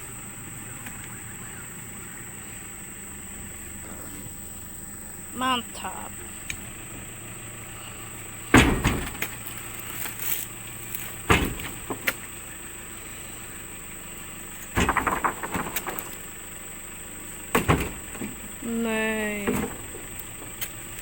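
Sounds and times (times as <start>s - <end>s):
steady high-pitched hum: 0.0s - 21.0s
sudden knocks and thumps: 8.5s - 9.4s, 11.2s - 12.2s, 14.7s - 16.0s.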